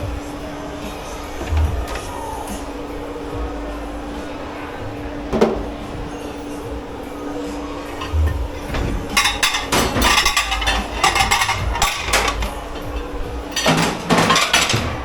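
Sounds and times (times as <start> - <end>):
dishes and cutlery clattering: 5.3 - 5.9, 7.9 - 15.0.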